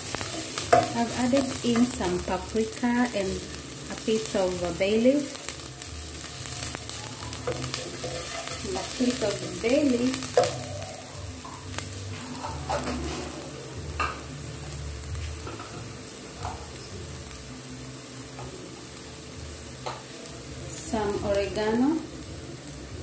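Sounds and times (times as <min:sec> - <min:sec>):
onions sizzling in hot oil: 0:00.0 - 0:23.0
wooden spoon stirring: 0:07.1 - 0:09.0.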